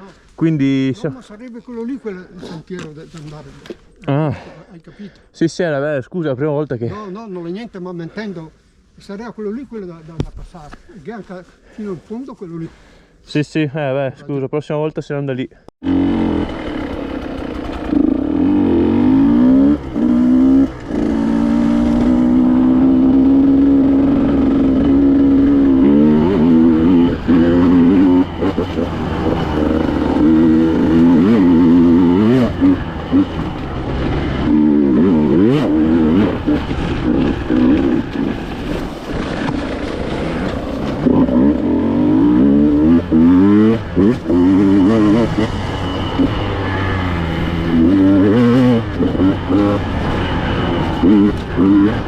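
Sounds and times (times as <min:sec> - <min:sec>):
two-stroke motorcycle engine revving: 0:15.8 - 0:52.0.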